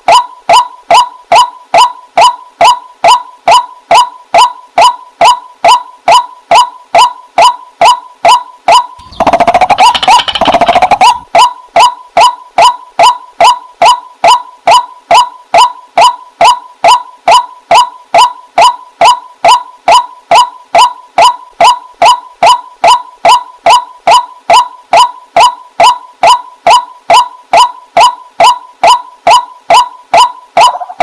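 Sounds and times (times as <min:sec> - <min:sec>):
fast rattling bird calls: 0:09.0 - 0:11.2
waterhen calling: 0:09.0 - 0:11.5.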